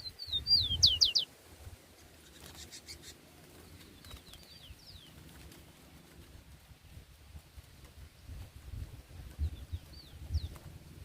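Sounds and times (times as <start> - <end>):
songbird whistling falling notes: 0.0 - 1.3.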